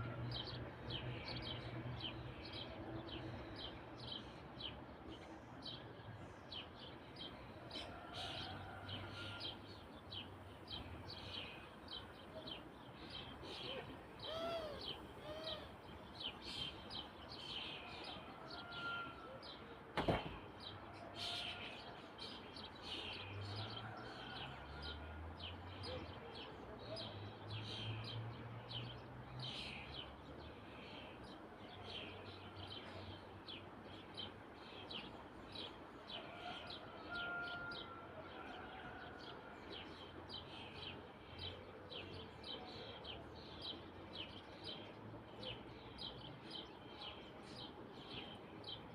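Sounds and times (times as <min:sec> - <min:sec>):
small birds chirping: 0:00.0 - 0:18.7.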